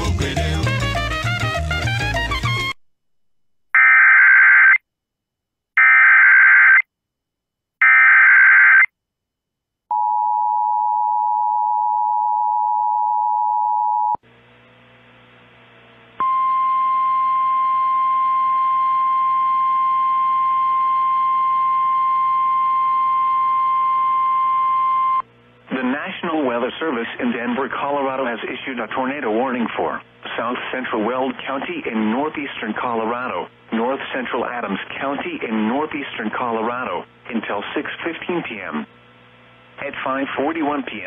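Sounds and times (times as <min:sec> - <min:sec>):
radio static: 0:25.7 - 0:38.9.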